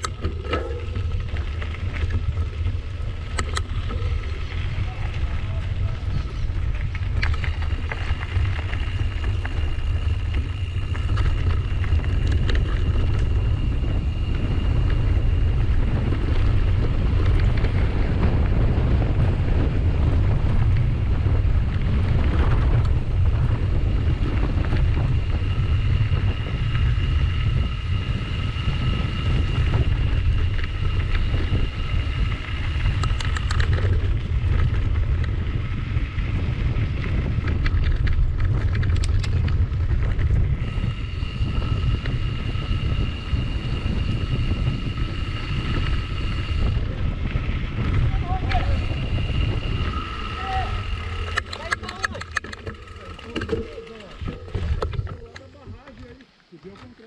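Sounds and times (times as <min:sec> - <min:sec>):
wind on microphone: 0:00.0 - 0:56.2
steady high whine: 0:39.7 - 0:57.0.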